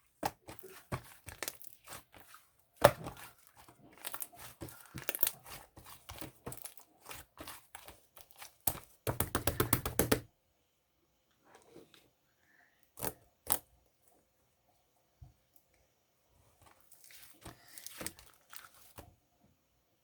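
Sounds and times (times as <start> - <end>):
crinkling and rustling: 0.0 - 9.2, 16.4 - 19.2.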